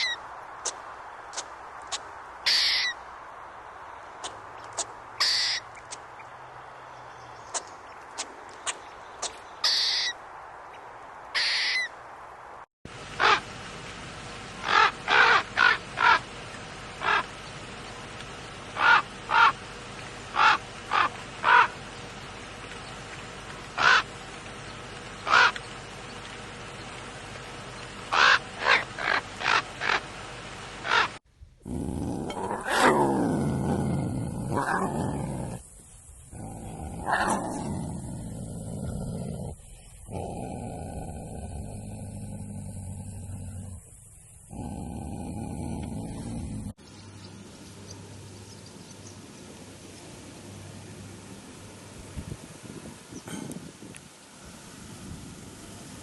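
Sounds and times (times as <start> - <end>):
sharp bird-like calls: 1.9 - 3.0, 4.2 - 6.0, 7.5 - 10.2, 11.4 - 11.9, 18.8 - 19.6, 23.8 - 24.1, 25.2 - 25.7, 28.1 - 30.1, 30.8 - 31.2.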